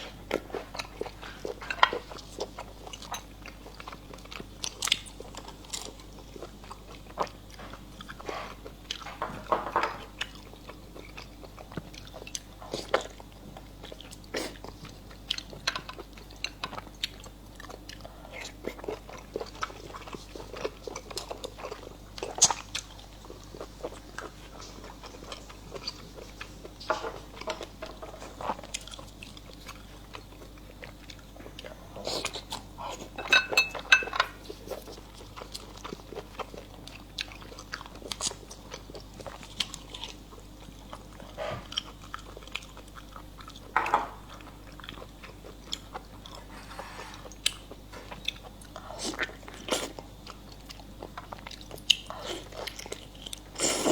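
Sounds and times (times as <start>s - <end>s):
food crunching: 0.0s - 53.9s.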